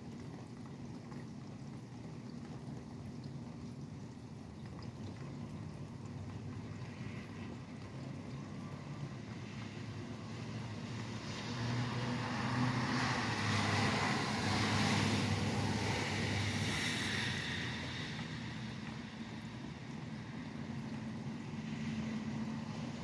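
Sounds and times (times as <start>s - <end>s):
steady rain: 6.3s - 23.0s
vehicle passing on wet road: 8.6s - 23.0s.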